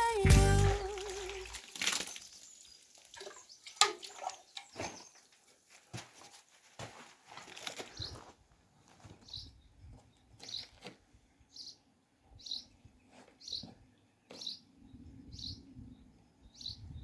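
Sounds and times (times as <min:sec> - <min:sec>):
bird chirping: 0:11.5 - 0:11.8, 0:12.4 - 0:12.8, 0:13.4 - 0:17.0.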